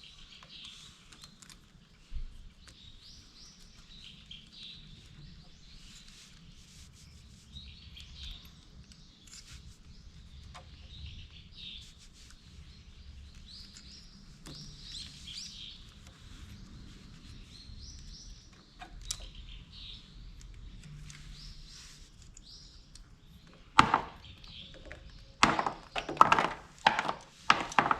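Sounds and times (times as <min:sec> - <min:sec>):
small birds chirping: 0:00.0 - 0:27.9
sharp clicks or knocks: 0:23.8 - 0:24.2, 0:24.9 - 0:27.9.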